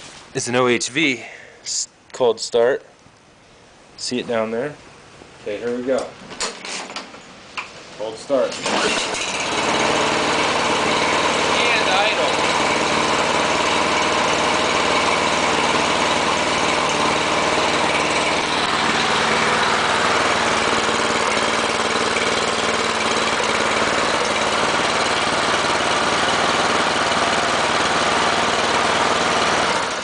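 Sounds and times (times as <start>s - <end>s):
small engines idling: 8.6s - 30.0s.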